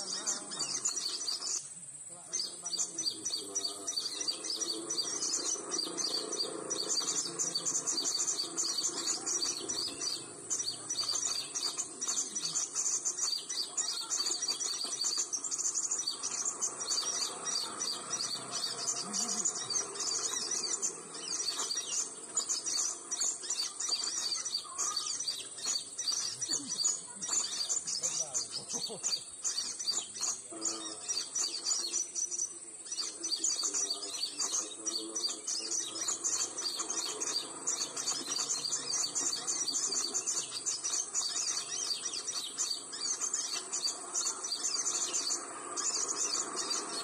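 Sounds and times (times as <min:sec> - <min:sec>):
high-pitched bird chirping: 0:00.0 - 0:01.7, 0:02.3 - 0:47.0
steady high whine: 0:00.0 - 0:47.0.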